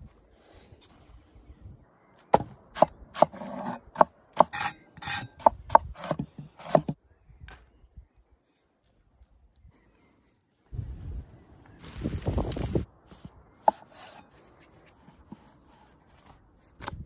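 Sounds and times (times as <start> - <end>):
hand tool scraping wood: 4.4 - 5.4.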